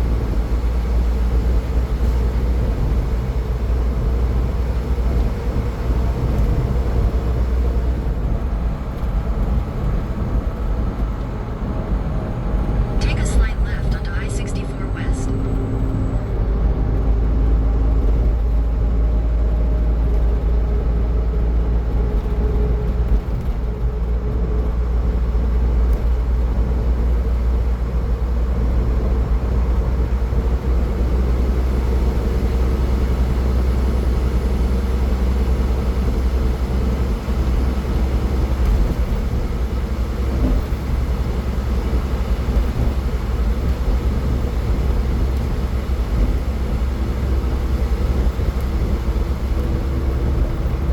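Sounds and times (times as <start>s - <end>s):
car tyres and engine rumble: 0.0s - 13.8s, 14.8s - 50.9s.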